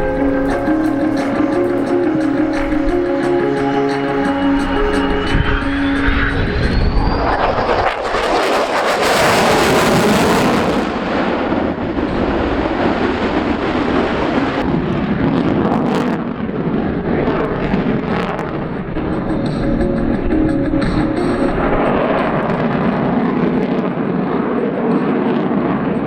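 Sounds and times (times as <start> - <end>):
jet engine noise passing: 0.0 - 24.6.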